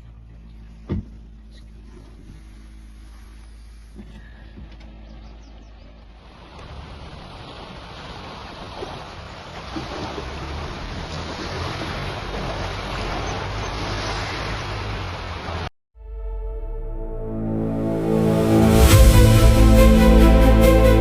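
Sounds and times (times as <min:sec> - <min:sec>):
wind: 0:00.0 - 0:21.0
ocean surf: 0:06.2 - 0:15.7.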